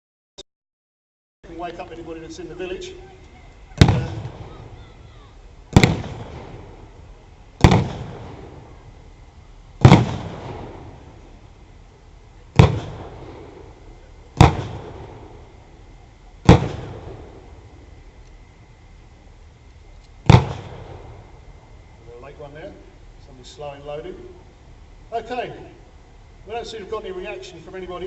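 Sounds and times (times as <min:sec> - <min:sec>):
artillery bangs with rumble: 0:03.8 - 0:04.8, 0:05.7 - 0:07.0, 0:07.6 - 0:08.7, 0:09.8 - 0:11.1, 0:12.5 - 0:13.7, 0:14.4 - 0:15.5, 0:16.4 - 0:17.4, 0:20.2 - 0:21.3.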